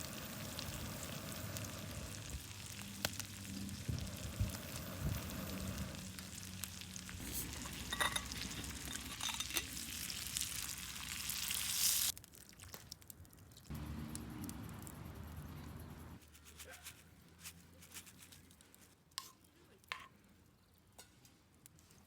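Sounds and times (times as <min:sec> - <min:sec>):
food sizzling in a frying pan: 0:00.0 - 0:12.2.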